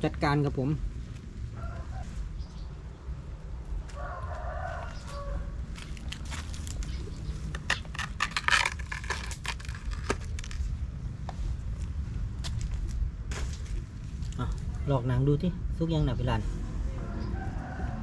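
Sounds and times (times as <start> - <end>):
low steady rumble: 0.0 - 18.0
salt crust crackling and scraping: 3.8 - 14.9.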